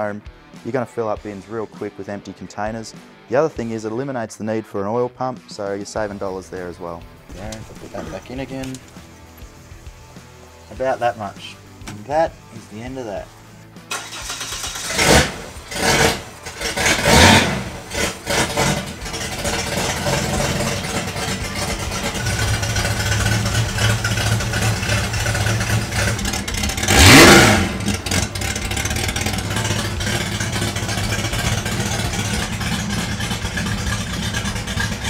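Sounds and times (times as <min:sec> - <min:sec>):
car engine starting and revving: 0:13.8 - 0:35.0.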